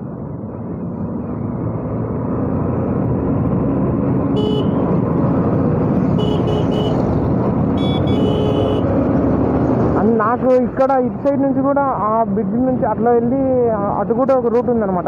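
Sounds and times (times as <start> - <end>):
wind and road noise: 0.0 - 15.0
vehicle horn honks: 4.4 - 4.9, 6.2 - 7.0, 7.8 - 8.8.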